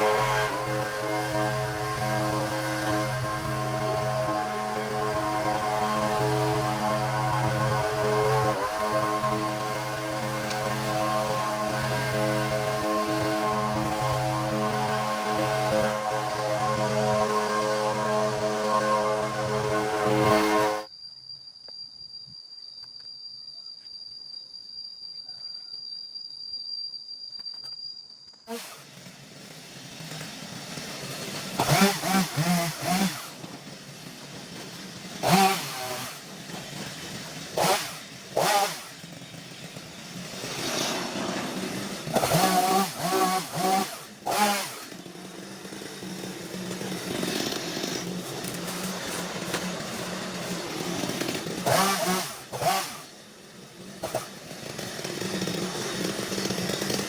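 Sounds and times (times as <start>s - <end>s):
small petrol engine revving: 0.0s - 20.9s, 28.5s - 57.0s
faint steady high tone: 18.4s - 28.4s.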